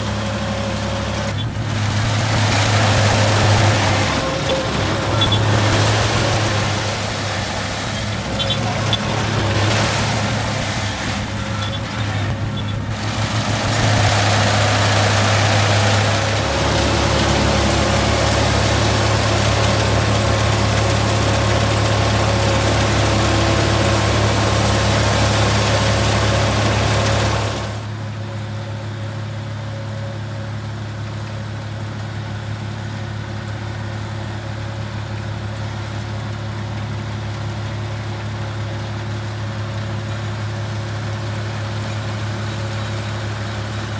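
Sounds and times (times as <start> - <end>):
combine harvester engine humming: 0.0 - 43.9
loud rushing noise: 1.2 - 27.8.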